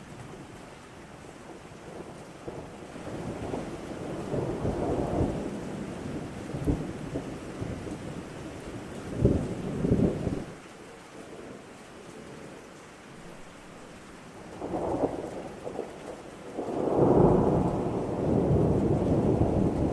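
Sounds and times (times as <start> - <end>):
steady rain: 0.0 - 19.9
thunder rolling: 14.6 - 19.9.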